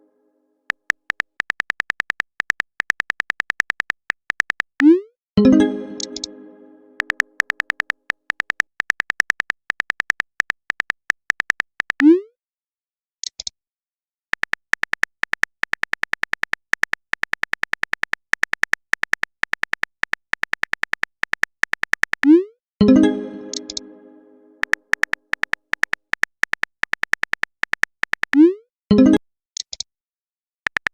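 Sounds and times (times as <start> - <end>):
smartphone keyboard typing clicks: 0.7 - 4.8, 6.0 - 6.3, 7.0 - 12.0, 14.4 - 22.3, 23.4 - 23.9, 24.6 - 28.4, 30.7 - 30.9.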